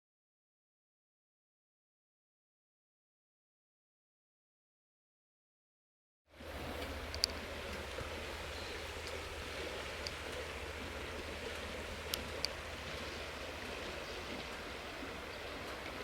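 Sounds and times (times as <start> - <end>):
outdoor background noise: 6.3 - 16.0
faint sharp clicks: 6.8 - 8.2, 9.0 - 9.2, 10.0 - 10.5, 11.5 - 12.6.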